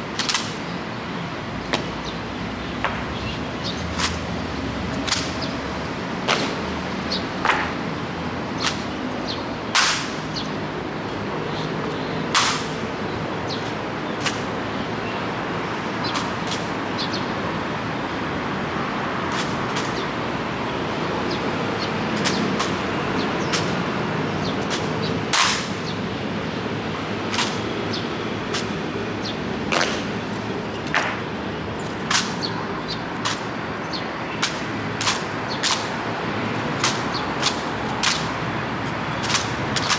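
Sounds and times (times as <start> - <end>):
sharp clacks: 0.1 - 0.8, 2.8 - 5.6, 6.2 - 8.0, 8.6 - 10.6, 12.3 - 14.6, 16.0 - 17.2, 19.3 - 20.6, 21.3 - 26.0, 27.2 - 39.9
rain hiss: 26.7 - 28.9.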